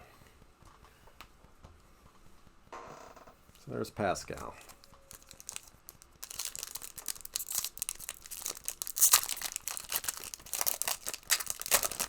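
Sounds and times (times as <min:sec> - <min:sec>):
cards shuffled by hand: 0:04.3 - 0:12.0
foil wrapper tearing and crinkling: 0:04.6 - 0:12.0.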